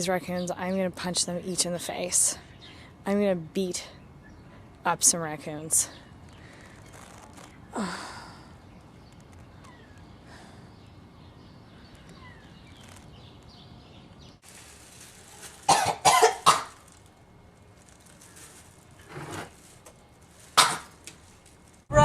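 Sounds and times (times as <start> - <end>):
woman coughing: 15.7 - 16.8.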